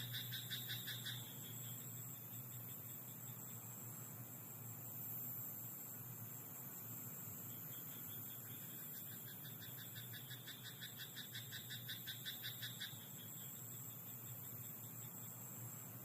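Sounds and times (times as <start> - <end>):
frog croaking: 0.0 - 1.8, 7.7 - 13.4
constant hiss: 0.0 - 16.0
faint steady trill: 0.0 - 16.0.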